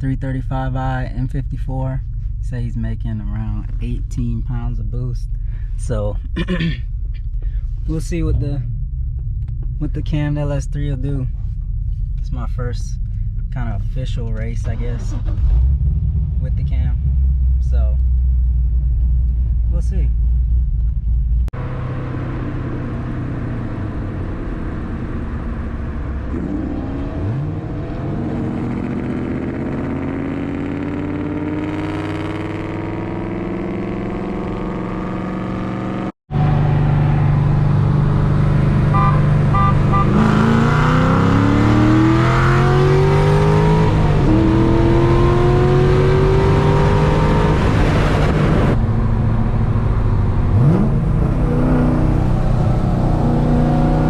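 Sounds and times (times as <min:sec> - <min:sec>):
car engine accelerating hard: 0:21.6 - 0:54.0.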